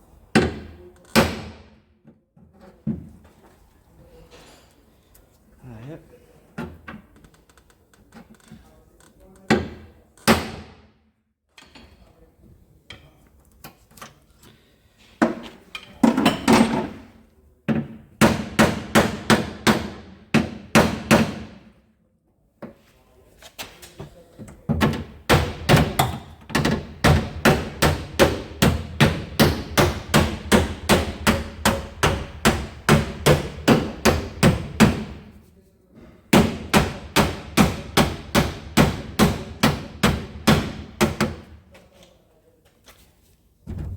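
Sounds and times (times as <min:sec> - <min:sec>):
hammer blows on sheet metal: 0:25.0 - 0:35.3, 0:36.3 - 0:41.5.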